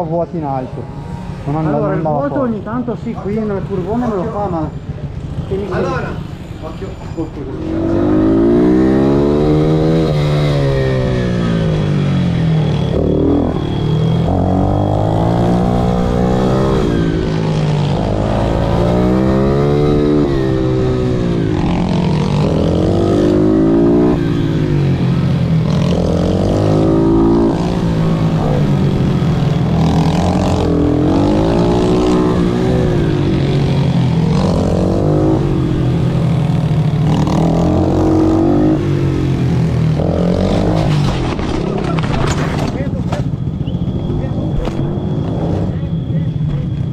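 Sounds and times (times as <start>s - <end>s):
pit bike engine revving: 7.4s - 46.0s.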